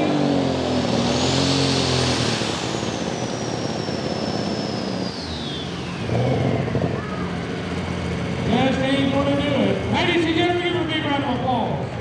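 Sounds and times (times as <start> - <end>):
turbocharger whine spooling down: 0.0 - 7.5
tractor engine running hard: 0.0 - 12.0.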